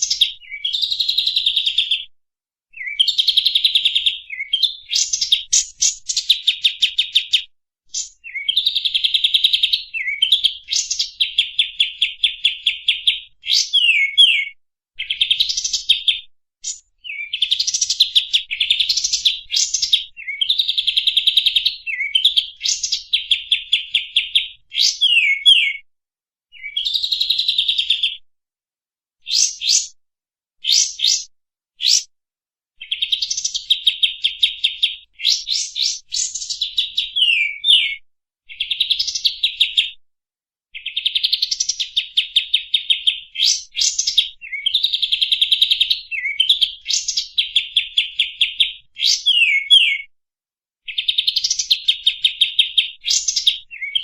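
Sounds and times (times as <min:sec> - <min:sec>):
songbird trilling and whistling: 0:00.0 - 0:02.1, 0:02.8 - 0:25.8, 0:26.6 - 0:28.2, 0:29.2 - 0:30.0, 0:30.6 - 0:32.1, 0:32.8 - 0:39.9, 0:40.8 - 0:50.1, 0:50.9 - 0:54.0.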